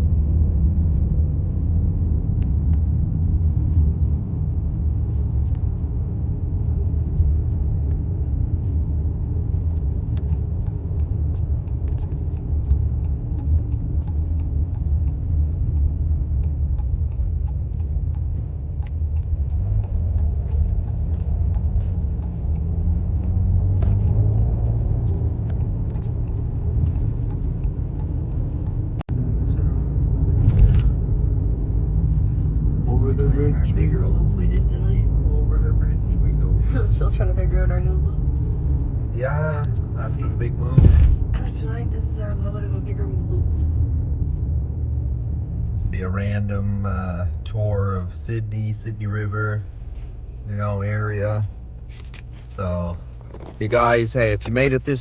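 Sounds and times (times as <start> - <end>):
car road rumble from inside: 0.0 - 55.0.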